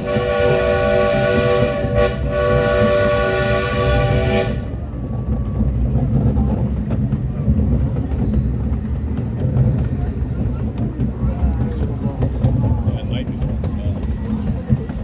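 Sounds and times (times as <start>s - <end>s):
train whistle blast: 0.0s - 4.8s
train running rumble: 0.0s - 15.0s.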